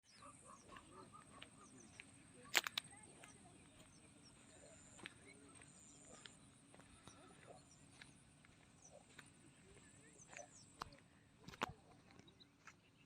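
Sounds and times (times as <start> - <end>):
birds chirping: 0.0 - 13.0
sharp clicks: 2.5 - 3.3.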